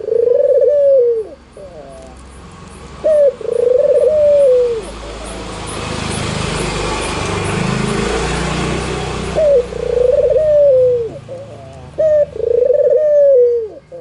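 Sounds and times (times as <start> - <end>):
dove cooing: 0.0 - 2.2, 3.0 - 5.1, 9.2 - 14.0.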